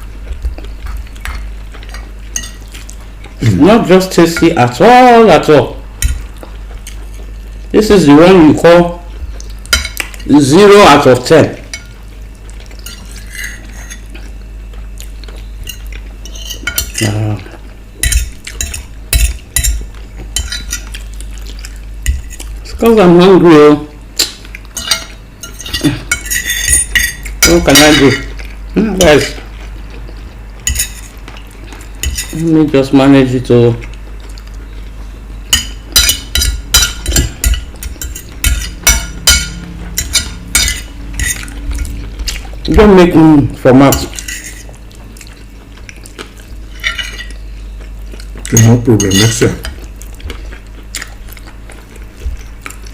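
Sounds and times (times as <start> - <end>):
cutlery scraping and clinking on plate: 1.9 - 2.7, 12.8 - 14.2, 15.6 - 17.2, 18.0 - 21.0, 24.2 - 29.5, 30.7 - 32.4, 35.5 - 42.0, 43.8 - 44.8, 46.7 - 47.4, 48.5 - 49.8
cutlery clinking on plate: 24.2 - 28.4, 35.5 - 41.6, 48.5 - 49.8.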